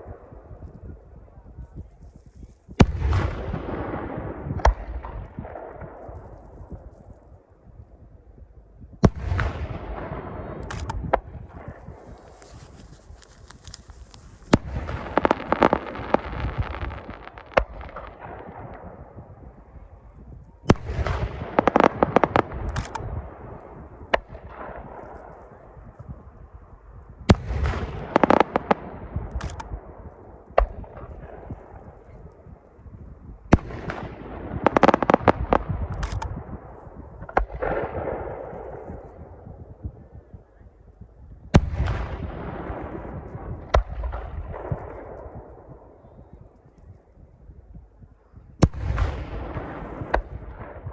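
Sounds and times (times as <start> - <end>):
rumbling echo: 2.8 - 50.9
fireworks bursting with crackling: 9.1 - 25.6, 27.3 - 32.2, 33.5 - 39.1.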